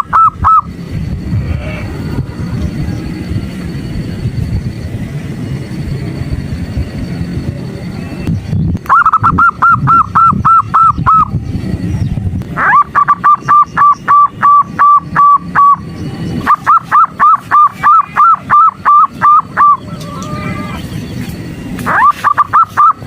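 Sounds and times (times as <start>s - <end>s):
dove call repeated clear notes: 0.0s - 0.8s, 8.9s - 11.4s, 12.6s - 21.0s, 21.8s - 23.0s
low rumble: 0.0s - 22.0s.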